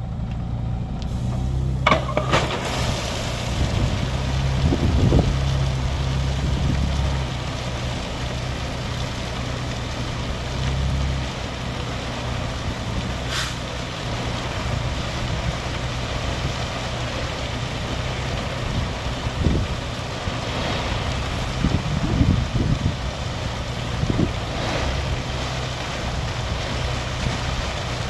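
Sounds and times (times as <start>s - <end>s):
diesel truck engine running: 0.0s - 28.0s
short hiss: 13.3s - 13.6s.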